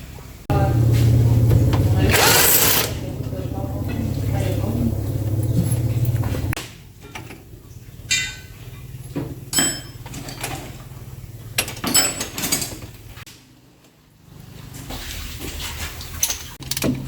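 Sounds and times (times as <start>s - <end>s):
low steady hum: 0.5s - 11.6s
metal tools clinking: 2.1s - 3.0s, 9.5s - 10.8s, 11.8s - 12.9s.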